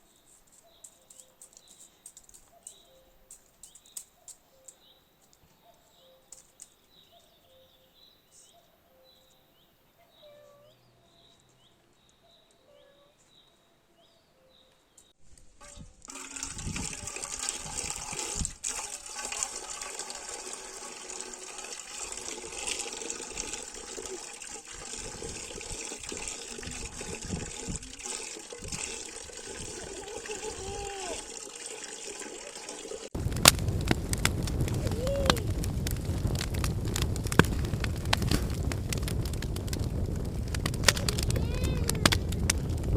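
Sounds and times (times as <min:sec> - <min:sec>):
bird chirps: 0:00.0 - 0:15.2
crackling with sharp clicks: 0:00.5 - 0:05.4, 0:33.2 - 0:42.9
water sloshing and splashing: 0:16.1 - 0:33.2.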